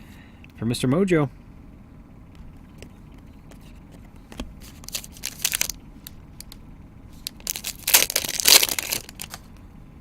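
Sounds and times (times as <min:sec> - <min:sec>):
foil wrapper tearing and crinkling: 0:04.8 - 0:05.8, 0:07.2 - 0:09.4.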